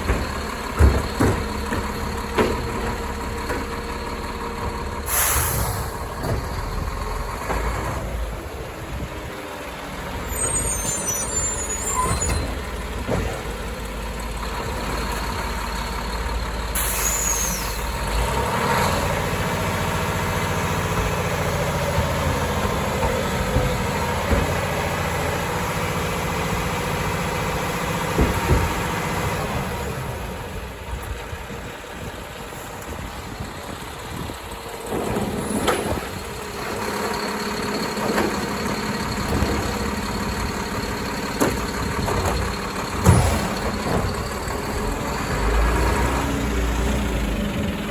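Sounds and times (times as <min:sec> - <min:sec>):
garbage truck engine running: 0:00.0 - 0:47.9
air brakes hissing: 0:05.0 - 0:06.2, 0:10.2 - 0:12.7, 0:16.7 - 0:18.0
brake squeal: 0:05.0 - 0:06.8, 0:09.6 - 0:13.9, 0:14.9 - 0:19.2, 0:34.1 - 0:46.4.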